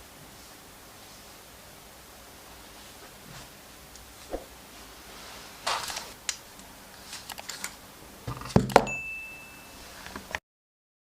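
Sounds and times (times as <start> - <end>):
thin high tone: 8.9 - 10.0.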